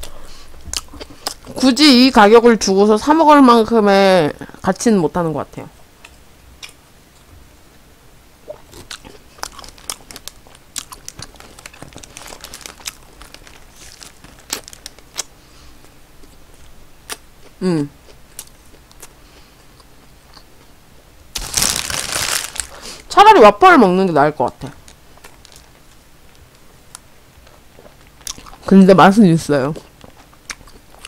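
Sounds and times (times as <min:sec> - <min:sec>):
chewing with soft crunches: 0:00.0 - 0:01.6, 0:06.0 - 0:07.4, 0:08.4 - 0:21.1, 0:24.8 - 0:28.7, 0:29.7 - 0:31.0
paper wrapper crinkling: 0:09.3 - 0:15.3, 0:21.4 - 0:23.0.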